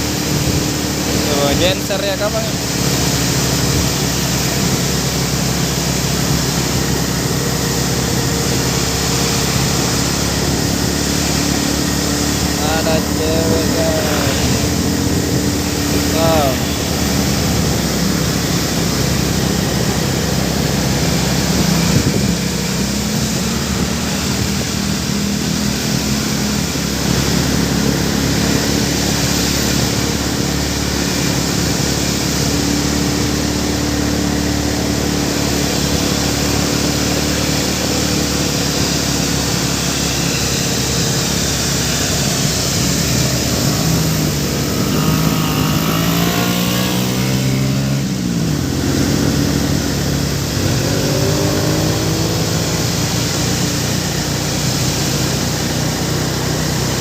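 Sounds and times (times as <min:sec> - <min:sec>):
engine revving up: 0:00.0 - 0:57.0
vehicle engines passing: 0:00.0 - 0:57.0.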